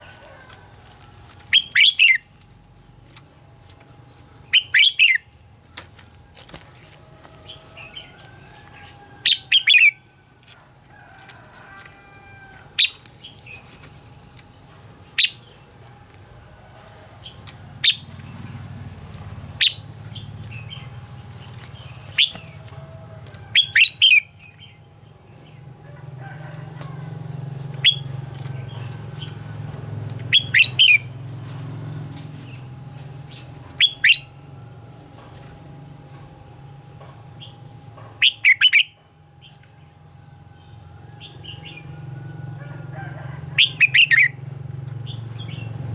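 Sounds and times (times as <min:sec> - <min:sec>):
low background hum: 0:00.0 - 0:45.9
bulbul singing: 0:01.4 - 0:06.8, 0:07.4 - 0:10.4, 0:12.6 - 0:16.4, 0:17.1 - 0:26.2, 0:27.0 - 0:31.4, 0:32.3 - 0:34.7, 0:37.2 - 0:42.2, 0:43.4 - 0:45.9.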